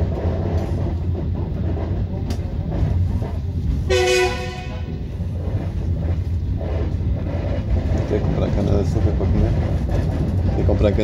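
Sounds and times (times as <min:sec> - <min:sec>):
train rumbling: 0:00.0 - 0:11.0
train horn toot: 0:03.9 - 0:05.0.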